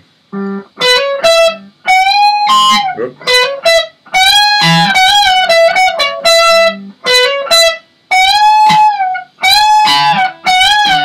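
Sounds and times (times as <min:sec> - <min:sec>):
electric guitar lead with string bends: 0:00.3 - 0:11.0.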